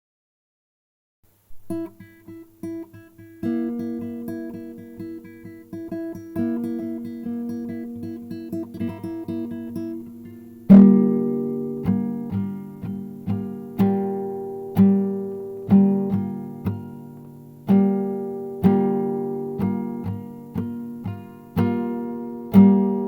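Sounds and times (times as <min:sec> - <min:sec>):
acoustic guitar picking: 0:01.6 - 0:23.0.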